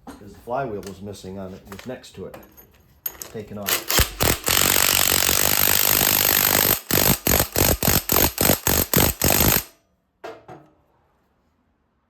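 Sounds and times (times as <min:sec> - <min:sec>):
impact wrench tightening nut: 0:03.1 - 0:09.7.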